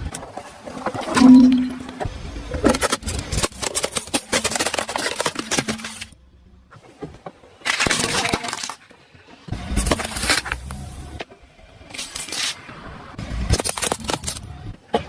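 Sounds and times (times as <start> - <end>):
brittle objects crushed under tyre: 2.8 - 6.2.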